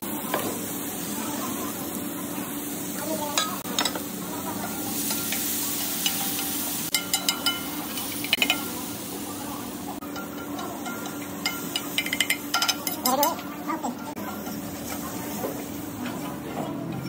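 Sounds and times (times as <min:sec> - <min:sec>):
food sizzling on a griddle: 0:00.0 - 0:16.5.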